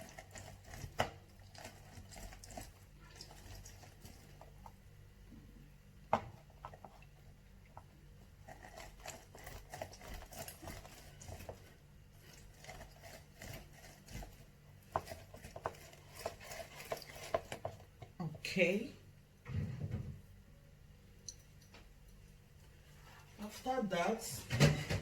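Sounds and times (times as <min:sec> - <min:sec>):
faint low hum: 0:00.0 - 0:25.0
kitchen clicks and knocks: 0:24.4 - 0:25.0.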